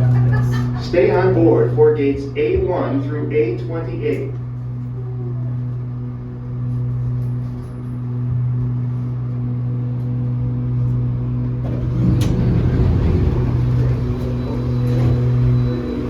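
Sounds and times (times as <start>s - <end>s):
tram electric hum: 0.0s - 16.0s
short rumble: 11.6s - 16.0s.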